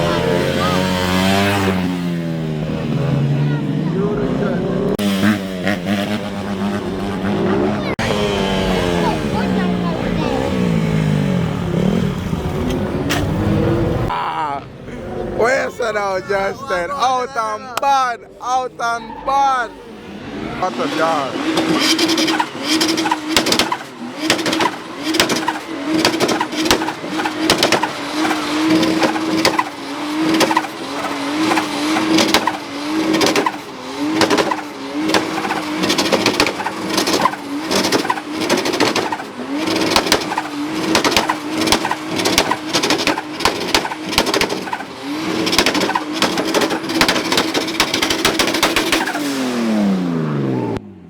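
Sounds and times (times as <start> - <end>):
vehicle engine at high revs: 0.0 - 14.1, 19.8 - 51.0
tire noise and crackle: 21.4 - 49.2.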